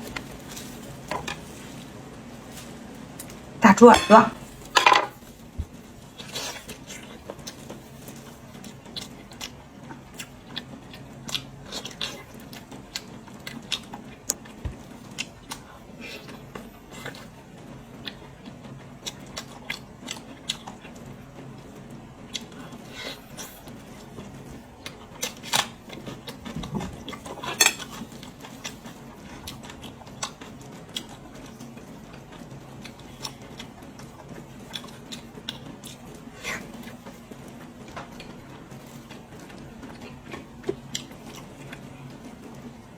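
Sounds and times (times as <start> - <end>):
crunchy chewing: 6.2 - 17.4, 22.3 - 42.0.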